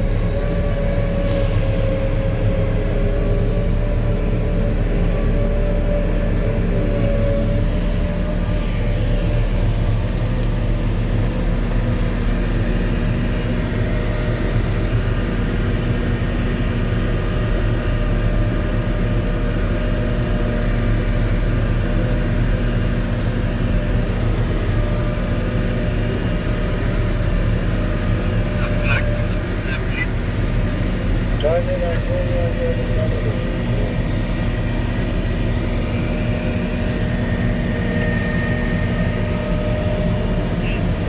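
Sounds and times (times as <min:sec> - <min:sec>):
diesel engine and snow blower running: 0:00.0 - 0:41.0.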